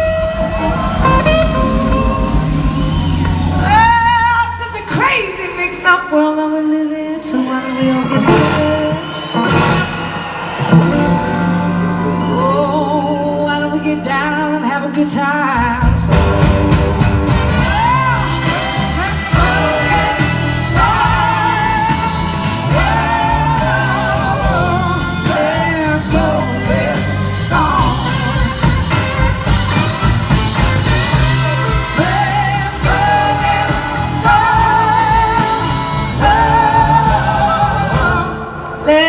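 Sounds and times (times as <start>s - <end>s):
live rock band playing: 0.0s - 5.5s, 7.3s - 39.0s
person singing: 10.7s - 16.7s, 17.6s - 29.3s.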